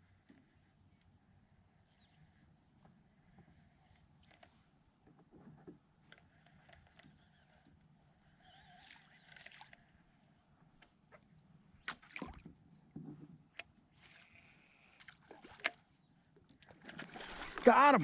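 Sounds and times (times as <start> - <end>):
water splashing and sloshing: 8.8 - 9.9, 11.8 - 13.2, 15.0 - 15.8, 16.5 - 18.0.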